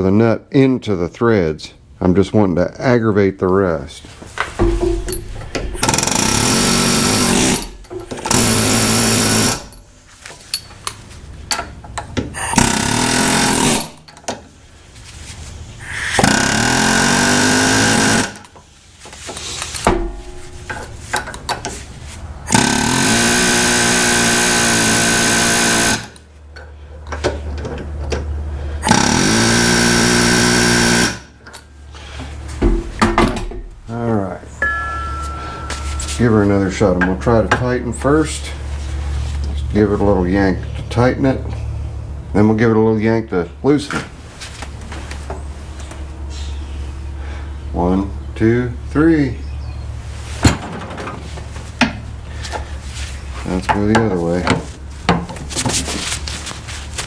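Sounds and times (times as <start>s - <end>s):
pneumatic air hammer rattling: 4.6s - 10.9s, 11.5s - 14.4s, 15.8s - 21.8s, 22.4s - 26.2s, 28.8s - 31.4s.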